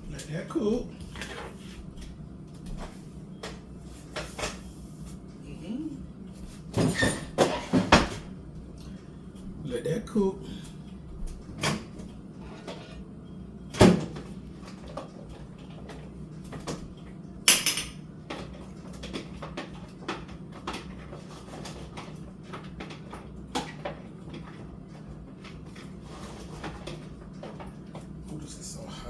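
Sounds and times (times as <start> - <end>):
steady low hum: 0.0 - 19.0, 24.1 - 29.0
dishes and utensils clattering: 6.8 - 8.2, 17.5 - 22.1.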